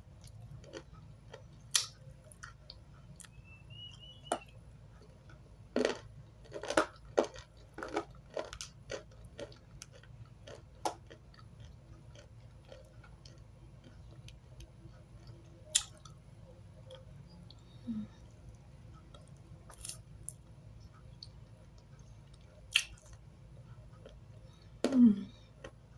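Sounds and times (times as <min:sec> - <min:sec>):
crunching and chewing dry chalk: 0:00.2 - 0:16.2, 0:19.1 - 0:20.5.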